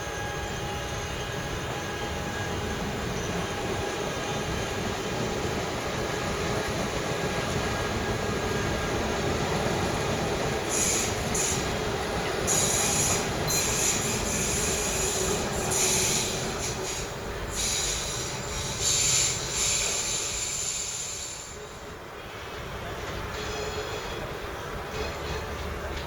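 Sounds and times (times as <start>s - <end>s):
train wheels squealing: 0.0s - 5.1s, 10.6s - 22.6s, 23.3s - 24.3s
rumble of train wheels: 0.0s - 26.0s.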